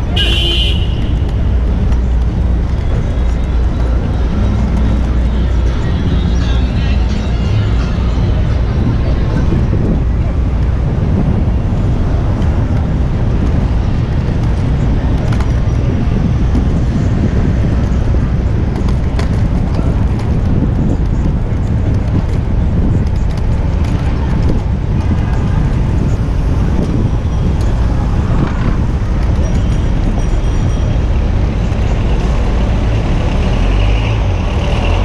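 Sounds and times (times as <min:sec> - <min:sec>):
city traffic noise: 0:00.0 - 0:35.0
wind rumble on microphone: 0:00.0 - 0:35.0.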